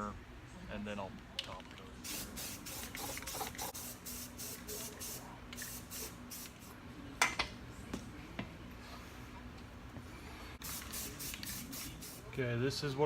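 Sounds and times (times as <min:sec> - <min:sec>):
spray can hissing bursts: 0:02.0 - 0:06.7, 0:10.6 - 0:12.3.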